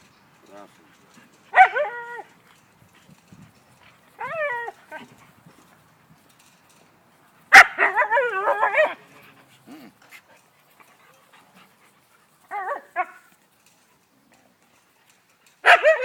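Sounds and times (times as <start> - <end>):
dog whining yowls: 4.2 - 5.0
dog barking: 15.6 - 16.0.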